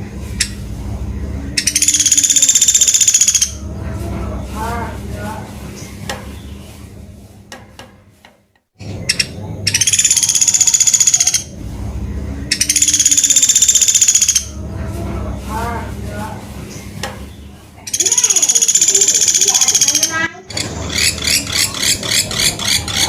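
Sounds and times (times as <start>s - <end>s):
bird trilling: 1.6s - 3.7s, 8.8s - 11.6s, 12.4s - 14.6s, 17.3s - 23.0s
lower softer bird notes: 8.8s - 23.0s.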